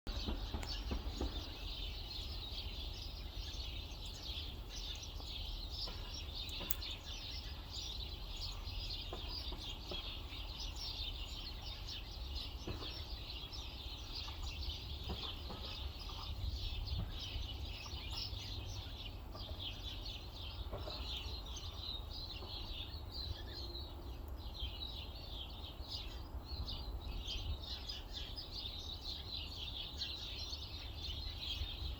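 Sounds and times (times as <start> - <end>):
wind rumbling on microphone: 0.1 - 22.2
small birds chirping: 0.1 - 31.9.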